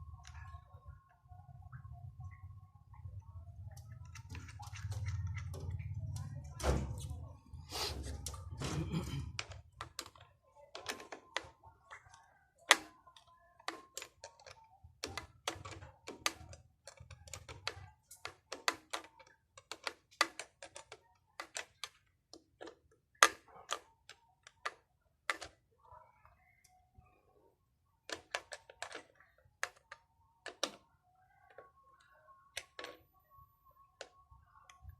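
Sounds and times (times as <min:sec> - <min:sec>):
tools clicking and knocking: 0:03.7 - 0:07.1, 0:07.9 - 0:25.6, 0:28.1 - 0:30.8.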